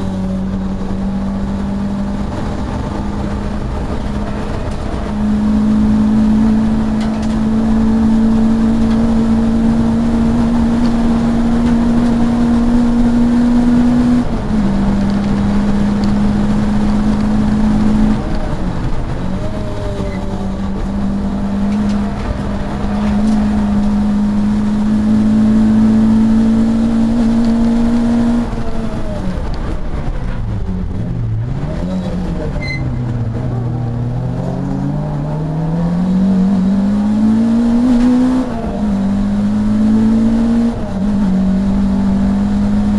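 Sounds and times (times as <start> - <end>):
race car engine from inside cabin: 0.0 - 42.9.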